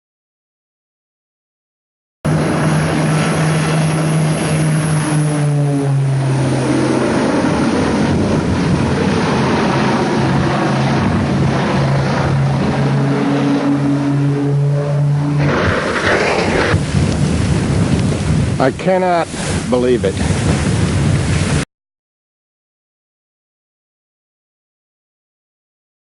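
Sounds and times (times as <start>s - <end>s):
propeller aircraft engine droning: 2.3s - 21.6s
rushing noise: 2.3s - 21.6s.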